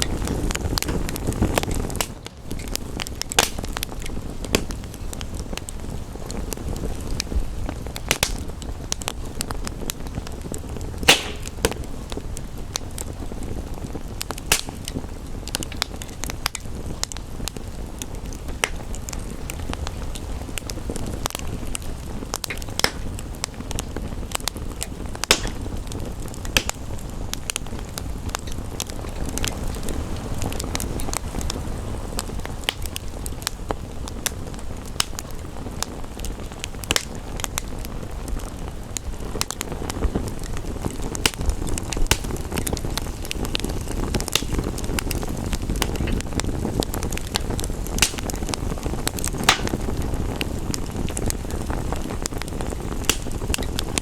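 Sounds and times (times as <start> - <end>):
low rumbling hiss: 0.0 - 54.0
wood fire crackling and popping: 0.0 - 54.0.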